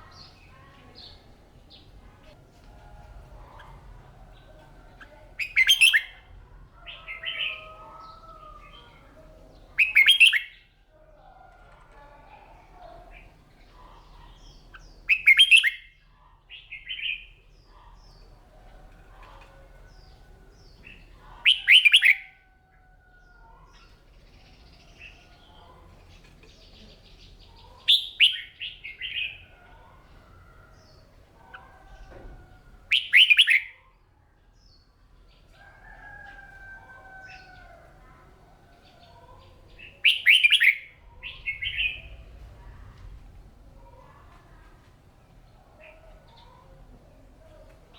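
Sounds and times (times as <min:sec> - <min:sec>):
bird singing warbled phrases: 0:00.0 - 0:02.0, 0:03.5 - 0:10.8, 0:12.5 - 0:18.4, 0:19.2 - 0:22.4, 0:23.6 - 0:32.1, 0:32.8 - 0:35.5, 0:37.2 - 0:42.8.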